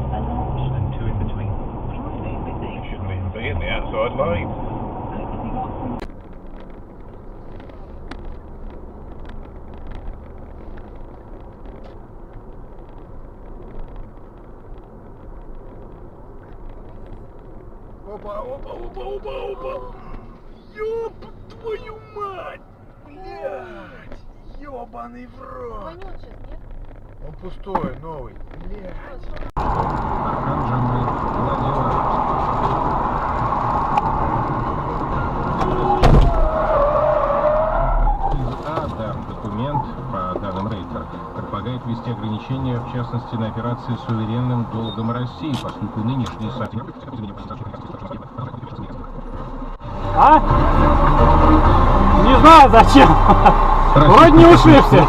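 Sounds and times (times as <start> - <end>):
car road and engine rumble: 0.0 - 55.0
loud thump: 35.5 - 36.6.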